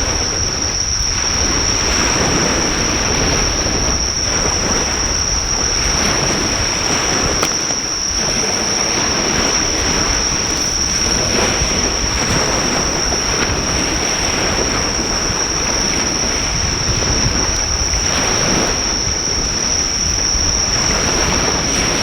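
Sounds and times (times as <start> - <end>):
insects chirring: 0.0 - 22.0
surf washing on shore: 0.0 - 22.0
bonfire pop: 7.3 - 8.2.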